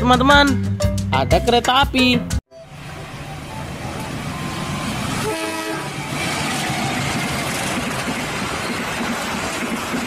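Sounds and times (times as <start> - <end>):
diesel locomotive engine rumbling: 2.5 - 10.0
rail noise: 2.6 - 10.0
train horn blast: 4.0 - 6.4.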